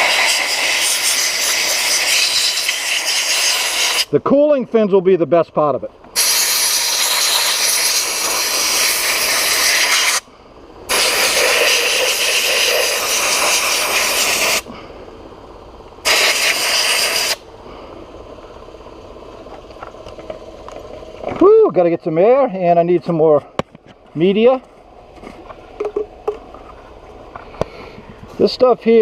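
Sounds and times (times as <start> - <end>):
sand blast gun blasting: 0.0 - 4.2, 6.2 - 10.3, 10.9 - 14.7, 16.0 - 17.4
low steady air noise: 0.0 - 29.0.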